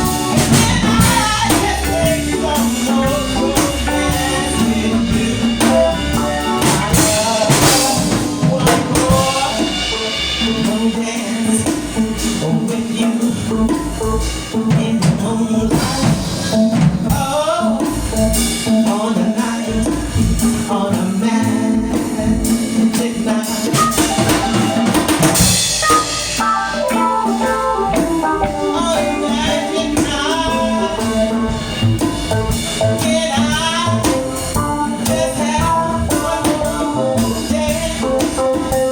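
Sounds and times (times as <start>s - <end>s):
person singing: 0.0s - 25.3s, 26.4s - 38.9s
drum kit: 0.0s - 38.9s
live band playing: 0.0s - 38.9s.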